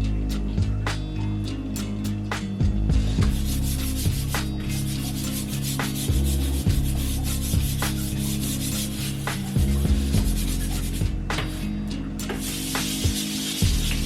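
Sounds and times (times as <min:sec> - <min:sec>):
lo-fi background music: 0:00.0 - 0:14.0
scrubbing strokes: 0:03.1 - 0:14.0.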